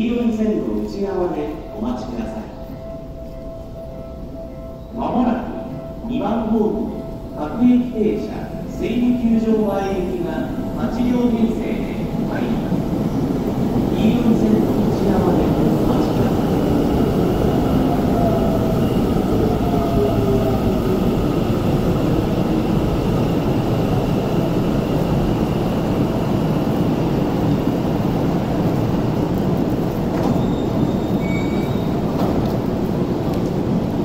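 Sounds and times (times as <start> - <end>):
wheels rumbling on rail: 9.8 - 34.0.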